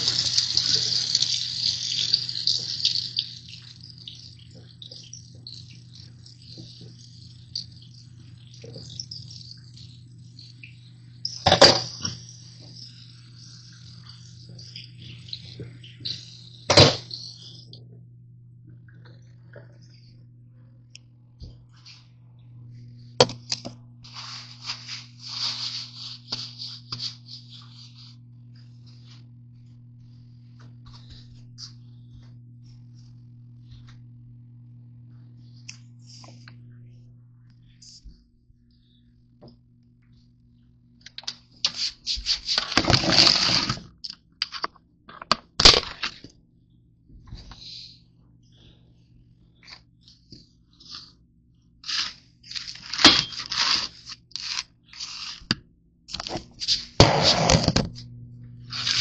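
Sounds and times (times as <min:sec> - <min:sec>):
low electrical hum: 0:00.0 - 0:59.0
crinkling rustling handling noise: 0:24.0 - 0:28.1, 0:51.8 - 0:55.5
crinkling and crunching: 0:42.4 - 0:46.3, 0:51.8 - 0:58.0, 0:58.7 - 0:59.0.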